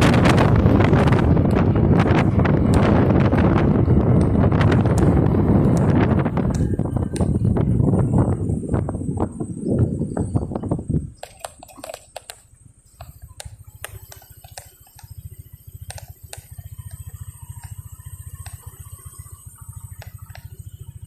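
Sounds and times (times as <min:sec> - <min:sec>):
low rumble: 0:00.0 - 0:11.8
motorcycle engine idling: 0:00.0 - 0:21.0
sharp clicks: 0:04.1 - 0:07.7, 0:11.2 - 0:17.8, 0:18.4 - 0:19.2, 0:19.9 - 0:20.7.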